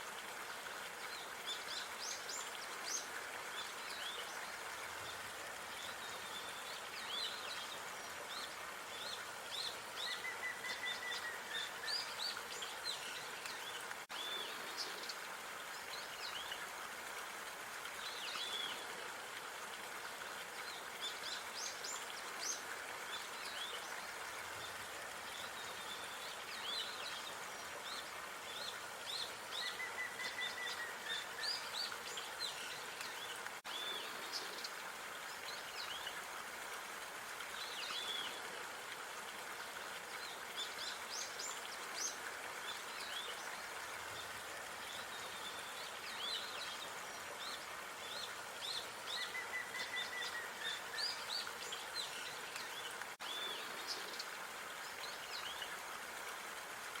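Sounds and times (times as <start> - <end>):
steady outdoor hiss: 0.0 - 57.0.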